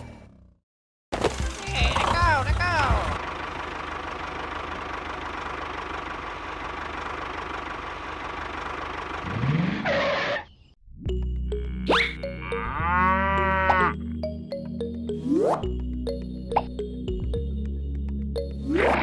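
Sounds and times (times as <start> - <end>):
small tractor motor running: 1.2 - 9.8
background music: 11.1 - 19.0
cartoon boing effects: 11.6 - 14.0.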